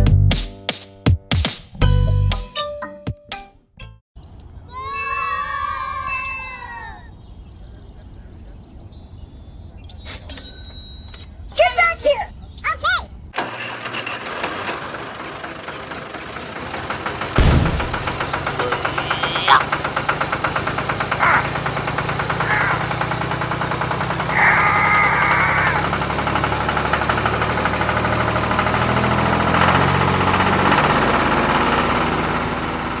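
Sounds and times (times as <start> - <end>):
engine chugging: 13.4 - 33.0.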